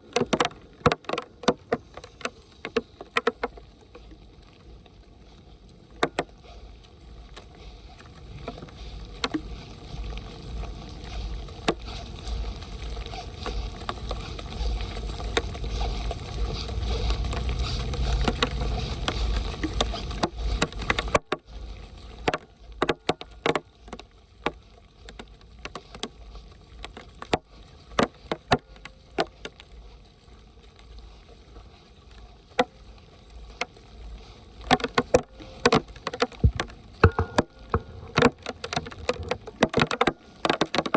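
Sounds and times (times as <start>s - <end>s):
water rushing and splashing: 0.0s - 40.9s.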